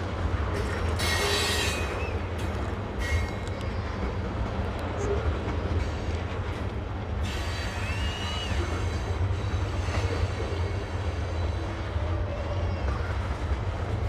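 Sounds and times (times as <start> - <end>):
freight train rumbling past: 0.0 - 14.0
faint wheel squeal: 0.6 - 4.3, 7.2 - 13.5.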